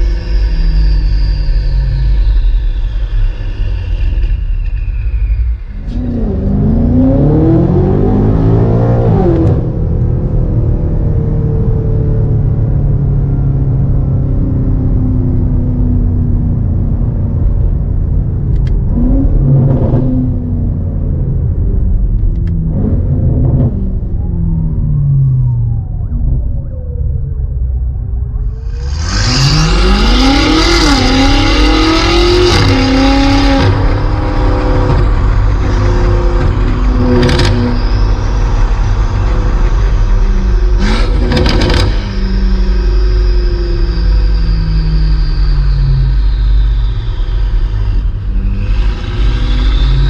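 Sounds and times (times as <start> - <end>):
car engine revving: 5.7 - 14.1, 14.8 - 50.0
exhaust cracks: 17.4 - 44.5.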